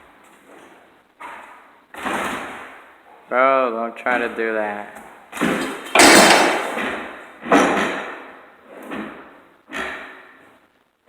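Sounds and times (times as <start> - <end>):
heavy bangs on building structure: 5.4 - 8.0.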